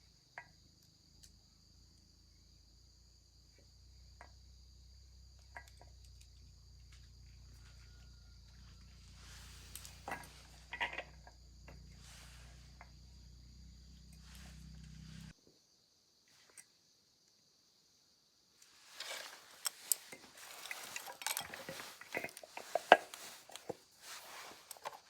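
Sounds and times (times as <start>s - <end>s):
insects chirring: 0.0s - 25.0s
small clicks and knocks: 5.4s - 8.6s
low hum: 11.4s - 15.3s.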